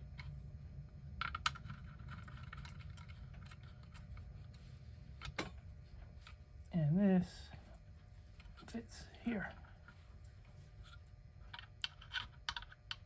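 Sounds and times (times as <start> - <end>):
low steady hum: 0.0 - 13.0
faint clicks of small parts: 1.2 - 4.6, 9.5 - 13.0.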